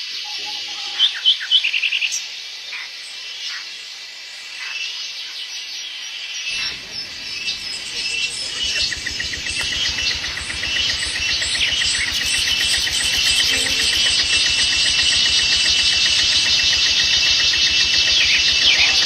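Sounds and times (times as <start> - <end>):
insects trilling: 6.1 - 19.0
birds chirping: 6.5 - 19.0
fast regular pulsing: 6.5 - 19.0
low rumble: 6.5 - 19.0.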